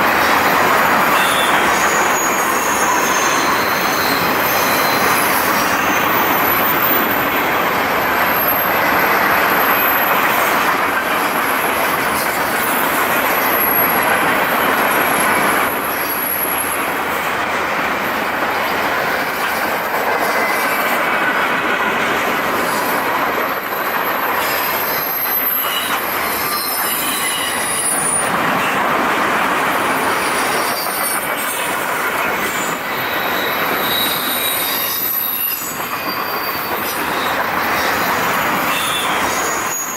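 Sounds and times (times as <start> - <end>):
wheels rumbling on rail: 0.0 - 39.9
high-pitched wheel squeal: 0.2 - 7.4, 22.6 - 28.7, 32.4 - 39.9.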